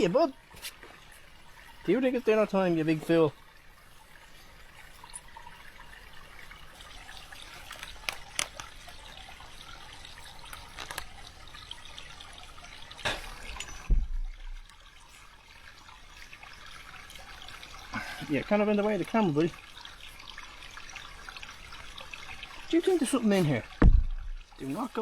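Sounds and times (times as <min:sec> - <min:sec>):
faint trickle of running water: 0:00.0 - 0:25.0
light clicks and rustles: 0:07.4 - 0:09.0, 0:10.4 - 0:11.2
dull low thump: 0:13.8 - 0:14.7, 0:23.6 - 0:24.5.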